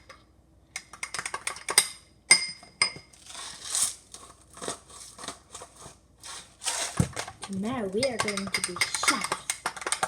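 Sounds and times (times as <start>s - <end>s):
sharp clicks of containers: 0.0s - 2.0s, 3.2s - 10.0s.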